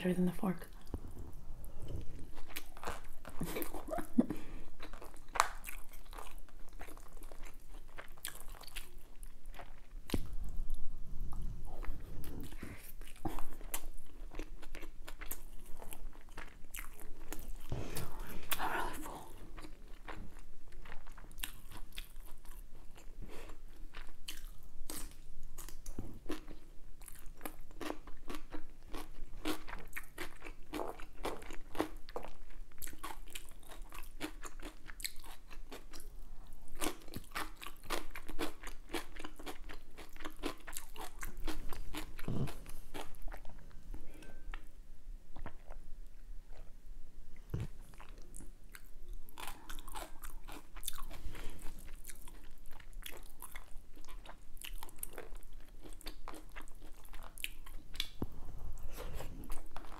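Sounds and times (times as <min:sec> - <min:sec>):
crunchy chewing: 0:01.8 - 0:10.4, 0:11.3 - 0:44.5, 0:47.5 - 0:58.2.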